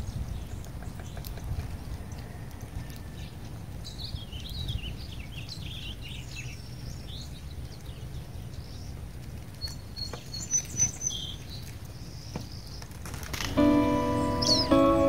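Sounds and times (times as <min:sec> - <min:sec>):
small birds twittering: 0:00.0 - 0:15.0
high whistled notes: 0:13.6 - 0:15.0.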